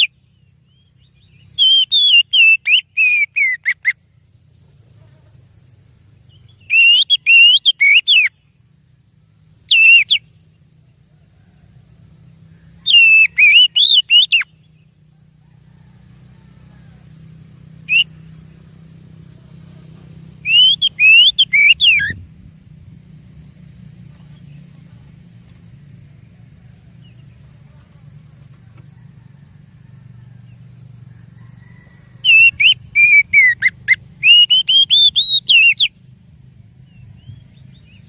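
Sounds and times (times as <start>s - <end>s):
bird whistling song: 0.0s - 4.2s, 5.5s - 8.6s, 9.4s - 10.5s, 12.5s - 15.0s, 17.5s - 18.8s, 20.4s - 22.3s, 30.3s - 36.0s.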